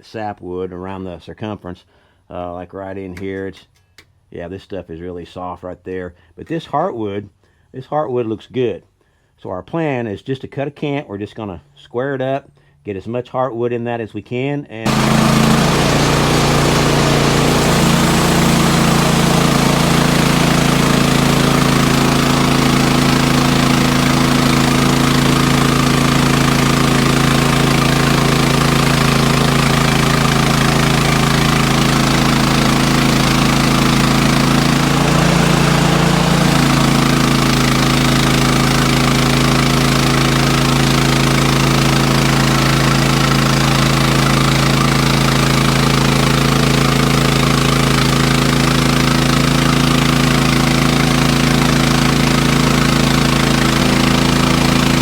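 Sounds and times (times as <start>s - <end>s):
sawmill engine running: 14.9s - 55.0s.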